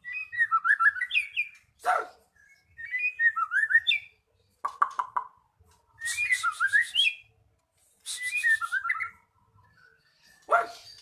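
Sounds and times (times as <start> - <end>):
bird singing whistled notes: 0.0 - 4.2, 5.9 - 7.3, 8.0 - 11.0.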